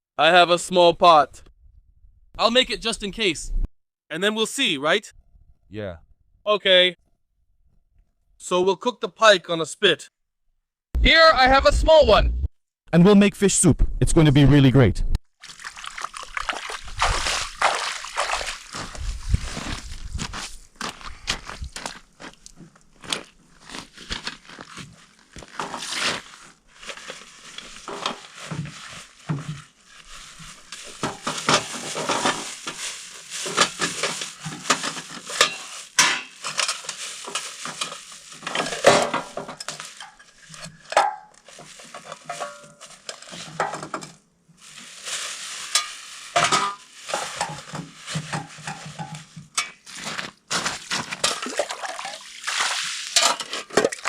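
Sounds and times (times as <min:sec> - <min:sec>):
cooking utensils clinking and scraping: 0:30.9 - 0:44.1, 0:45.6 - 0:49.8, 0:53.1 - 0:54.0.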